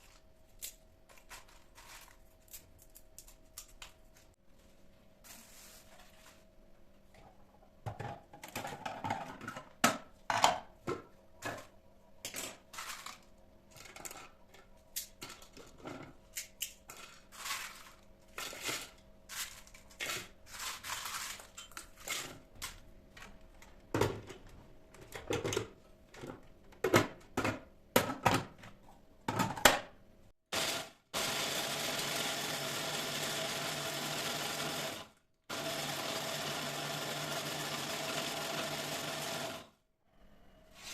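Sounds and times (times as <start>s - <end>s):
small electric kitchen motor: 30.5s - 39.8s.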